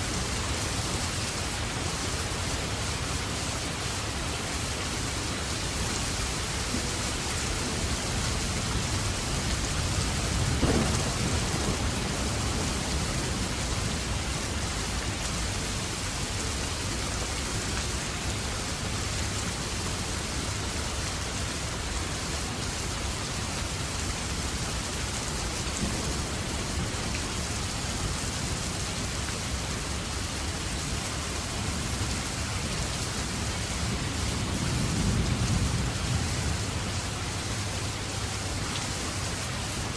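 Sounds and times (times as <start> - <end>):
steady rain falling: 0.0 - 39.9
thunder rumble: 6.8 - 15.7.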